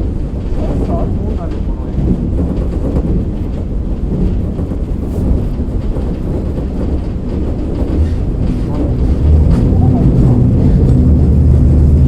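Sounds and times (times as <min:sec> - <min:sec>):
railcar engine and wheels rumbling: 0:00.0 - 0:12.0.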